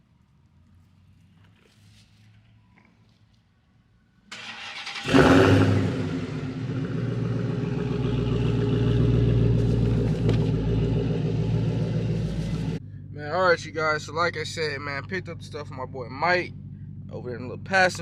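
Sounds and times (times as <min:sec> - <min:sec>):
car engine starting and idling: 0:04.3 - 0:18.0.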